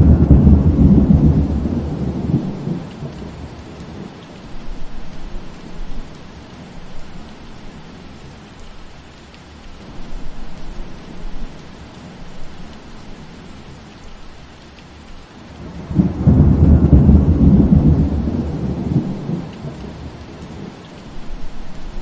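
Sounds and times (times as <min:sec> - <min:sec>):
thunder rumble: 0:00.0 - 0:06.2, 0:15.5 - 0:22.0
rain falling through trees: 0:00.0 - 0:22.0.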